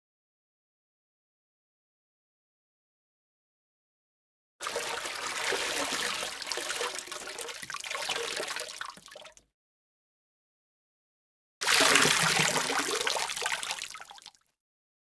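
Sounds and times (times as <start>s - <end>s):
water rushing and splashing: 4.6s - 9.1s, 11.6s - 14.0s.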